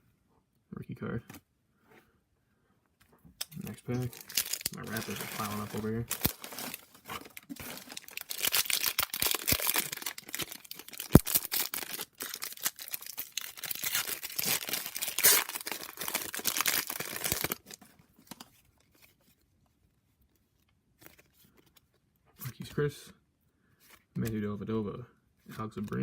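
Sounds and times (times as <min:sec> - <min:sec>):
card pack wrapper crinkling: 0:03.4 - 0:19.1.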